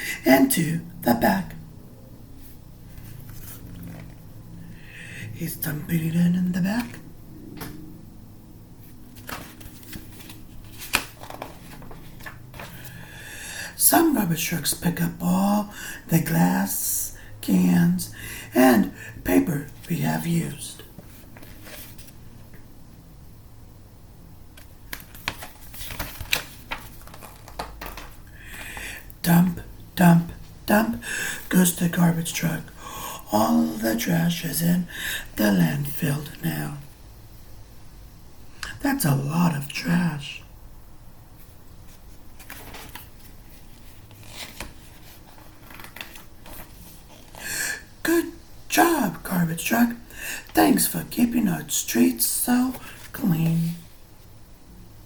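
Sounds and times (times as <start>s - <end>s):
paper rustling: 2.9s - 4.2s, 8.8s - 13.0s, 21.0s - 22.3s, 24.6s - 28.8s, 41.8s - 47.4s.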